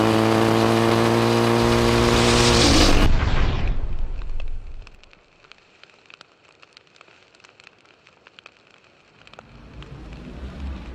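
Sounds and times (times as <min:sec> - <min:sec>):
motorcycle engine: 0:00.0 - 0:03.2
faint ticks and crackles: 0:04.1 - 0:10.9.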